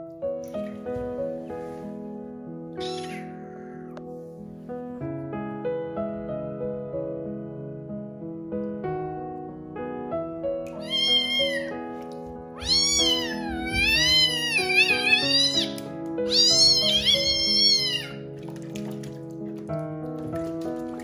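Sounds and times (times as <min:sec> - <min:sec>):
kitten meowing loudly: 0:02.8 - 0:03.8, 0:10.8 - 0:11.8, 0:12.6 - 0:18.2.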